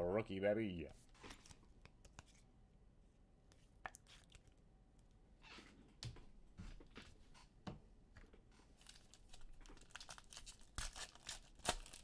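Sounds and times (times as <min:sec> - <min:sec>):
wrappers crinkling and tearing: 0:08.8 - 0:12.0.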